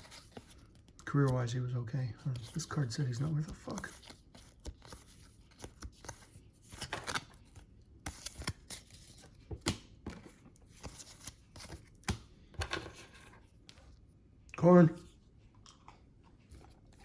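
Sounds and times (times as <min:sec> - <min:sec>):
cards clicking and rustling: 0:00.0 - 0:01.4, 0:02.2 - 0:13.8.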